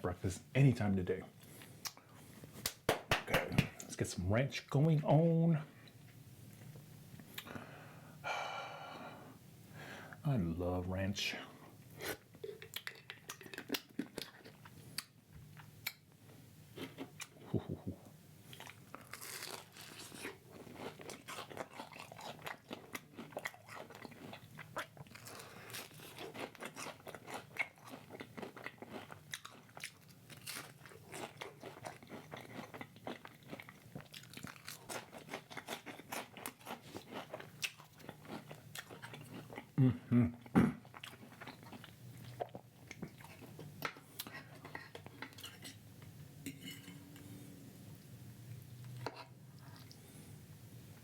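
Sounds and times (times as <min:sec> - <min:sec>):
person chewing crunchy food: 0:12.1 - 0:16.0, 0:16.7 - 0:39.8, 0:40.4 - 0:45.6.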